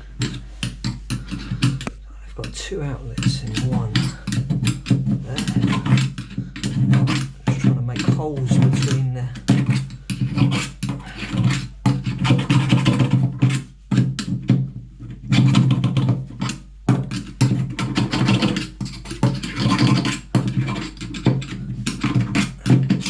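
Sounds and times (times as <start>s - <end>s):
tool scraping sink drain: 0.0s - 23.0s.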